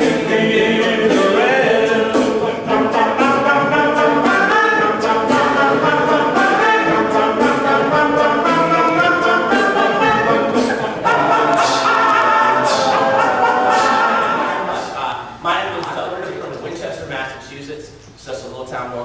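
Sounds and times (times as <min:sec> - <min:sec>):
men singing in close harmony: 0:00.0 - 0:15.4.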